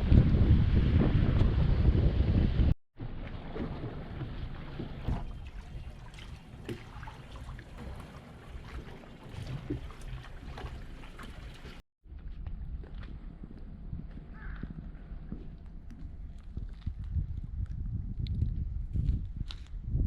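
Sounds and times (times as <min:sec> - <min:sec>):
water lapping around boat: 0:03.0 - 0:17.8.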